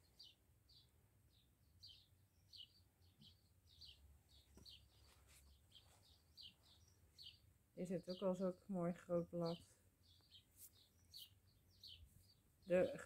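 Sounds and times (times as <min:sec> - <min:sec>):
faint bird chirping: 0:00.0 - 0:13.0.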